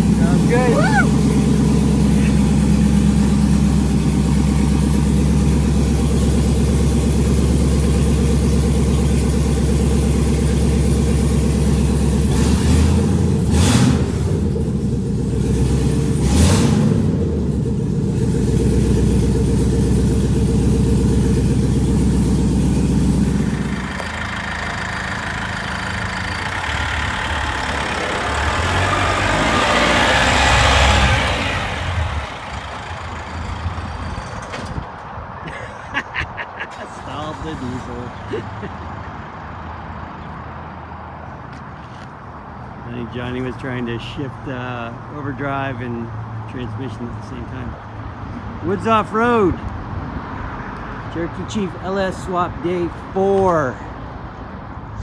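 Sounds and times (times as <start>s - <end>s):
vehicle engine running and revving: 0.0s - 34.5s.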